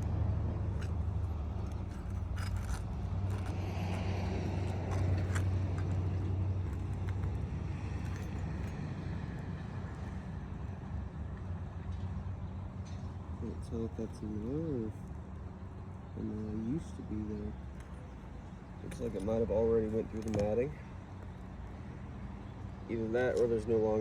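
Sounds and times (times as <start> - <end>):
steady low rumble: 0.0 - 11.4
shingles clicking and scraping: 0.8 - 7.4.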